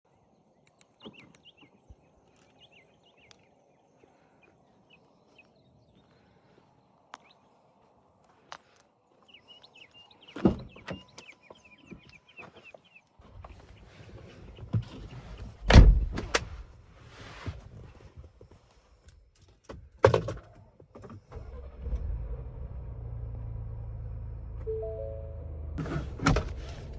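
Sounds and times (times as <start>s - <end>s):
low engine rumble: 22.2s - 26.9s
car doors shutting: 25.8s - 26.9s.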